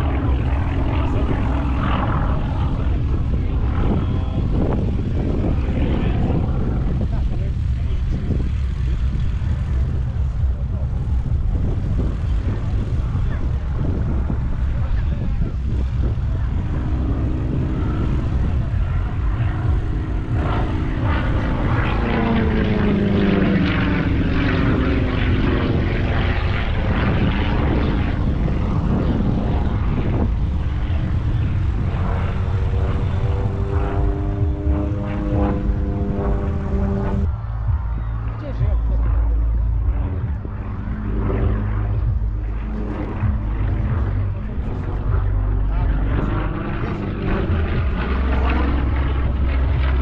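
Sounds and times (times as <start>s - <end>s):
propeller aircraft engine droning: 0.0s - 50.0s.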